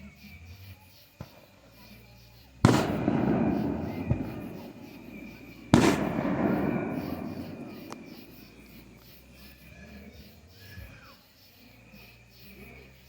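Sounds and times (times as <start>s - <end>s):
fireworks bangs: 2.6s - 9.4s.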